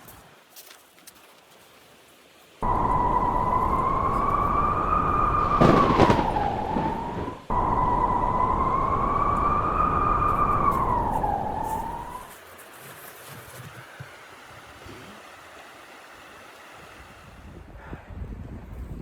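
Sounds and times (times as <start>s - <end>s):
wind howling: 2.6s - 12.3s.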